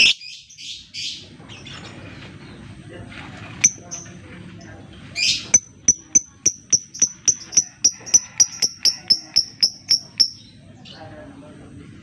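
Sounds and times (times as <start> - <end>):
harsh bird call burst: 0.0 - 0.2
bird chip calls: 0.0 - 0.4, 5.2 - 10.6.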